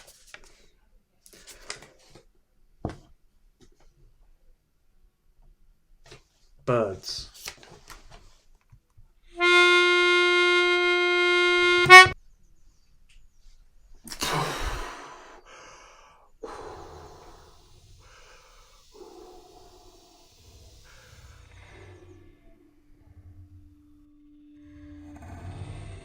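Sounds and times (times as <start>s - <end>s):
harmonica note: 9.4s - 12.2s.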